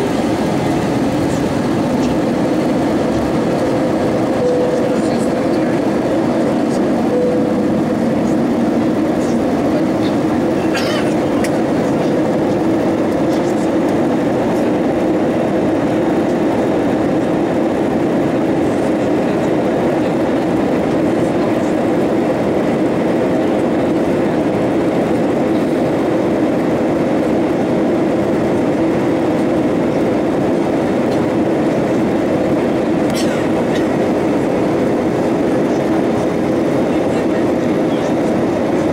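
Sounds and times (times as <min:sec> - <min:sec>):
airplane cabin rumble: 0:00.0 - 0:38.9.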